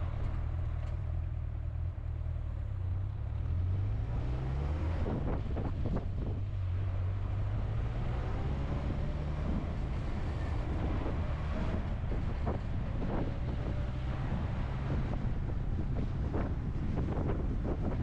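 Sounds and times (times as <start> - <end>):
engine and tyres rumbling: 0.0 - 18.0
wind noise on microphone: 4.2 - 18.0.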